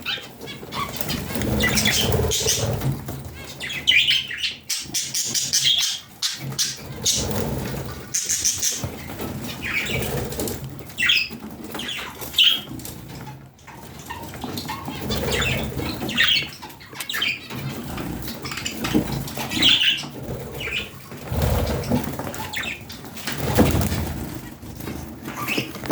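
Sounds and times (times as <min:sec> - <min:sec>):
budgerigars chirping: 0:00.0 - 0:12.8, 0:14.0 - 0:23.0, 0:25.3 - 0:25.8
wings fluttering: 0:00.4 - 0:25.9.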